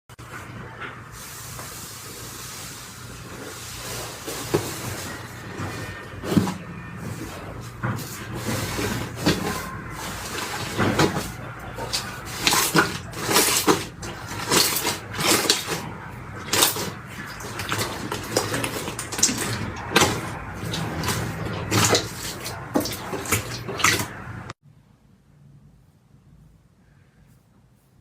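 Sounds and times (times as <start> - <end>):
slime squelching by hand: 3.2 - 24.5.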